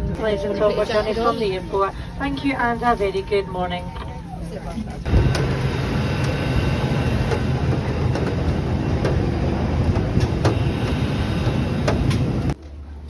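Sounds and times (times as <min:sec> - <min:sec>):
aircraft cabin rumble: 0:03.8 - 0:13.0.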